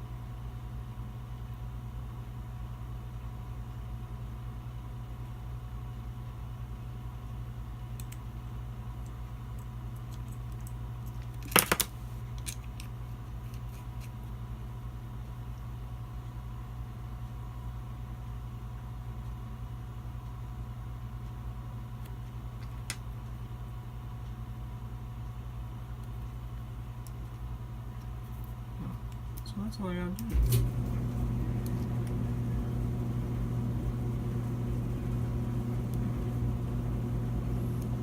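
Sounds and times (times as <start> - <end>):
steady low hum: 0.0 - 38.0
metal gun parts clicking: 10.1 - 12.9.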